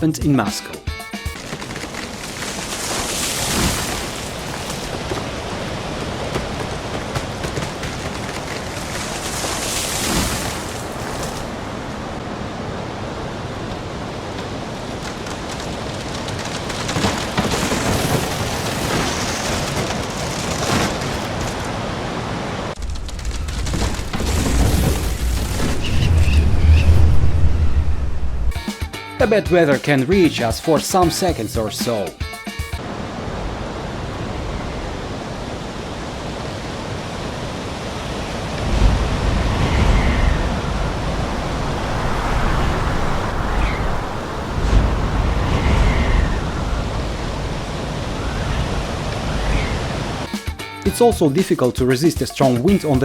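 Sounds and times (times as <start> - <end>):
gusty wind buffeting microphone: 21.2 - 28.6, 32.9 - 50.3.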